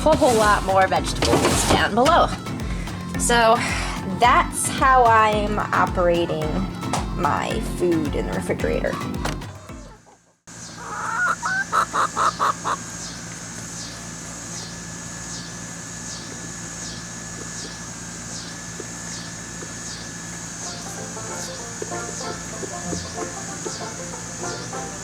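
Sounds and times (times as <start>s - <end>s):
low hum: 0.0s - 10.0s
poultry calling: 8.2s - 25.0s.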